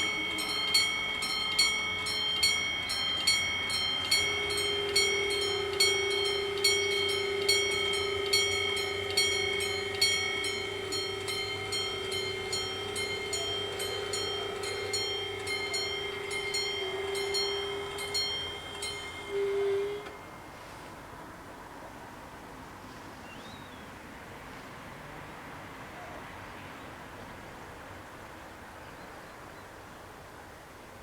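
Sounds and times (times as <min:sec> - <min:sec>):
level crossing warning bells: 0:00.0 - 0:21.1.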